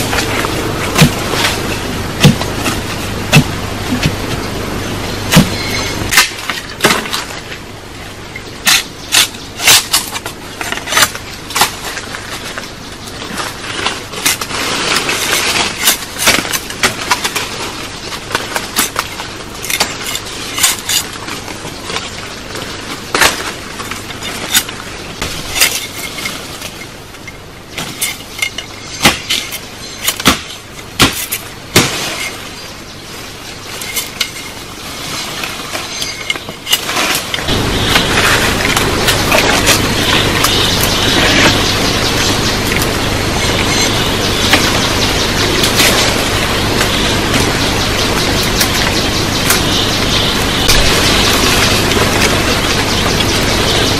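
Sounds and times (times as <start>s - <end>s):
wood chopping and cracking: 0.9s - 1.6s, 2.2s - 4.2s, 5.3s - 7.4s, 27.8s - 32.4s.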